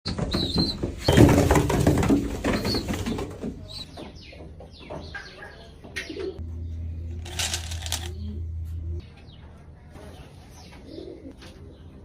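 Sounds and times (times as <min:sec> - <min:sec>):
pigeons flapping wings: 0:00.2 - 0:03.6.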